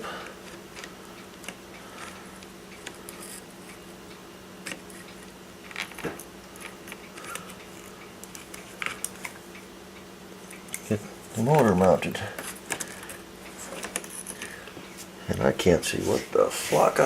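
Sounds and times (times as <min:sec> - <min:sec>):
steady low hum: 0:00.0 - 0:17.0
small parts clicking and tapping: 0:00.4 - 0:03.8, 0:04.6 - 0:09.4, 0:12.4 - 0:13.2.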